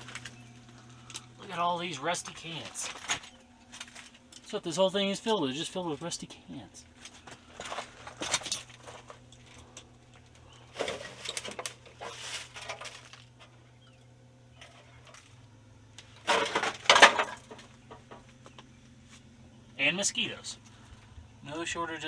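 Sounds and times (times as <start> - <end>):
tin cans clattering and crunching: 0.0 - 1.2, 2.2 - 4.6, 6.9 - 13.5, 16.2 - 18.6.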